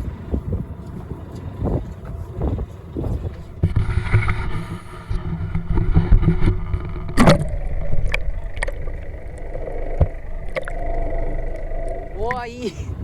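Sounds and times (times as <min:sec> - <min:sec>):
low rumbling wind: 0:00.0 - 0:13.0
water noise: 0:02.8 - 0:13.0.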